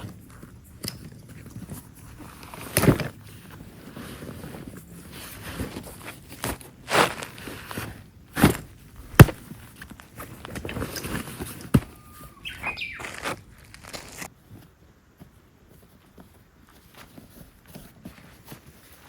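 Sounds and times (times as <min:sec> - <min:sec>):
rustling: 0:00.0 - 0:19.0
whistling chirp: 0:11.9 - 0:13.2.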